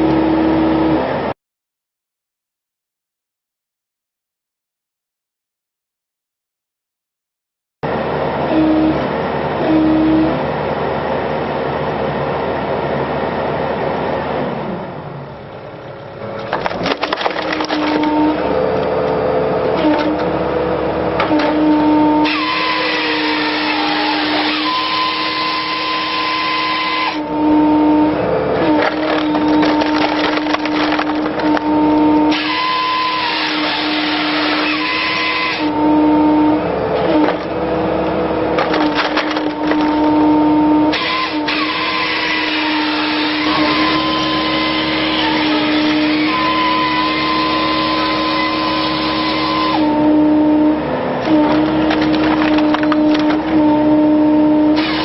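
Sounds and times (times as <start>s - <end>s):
hydraulic and engine whine: 0.0s - 1.4s, 7.8s - 55.0s
wood cracking and splintering: 16.4s - 18.4s, 28.7s - 31.7s, 38.6s - 40.3s, 51.2s - 53.6s.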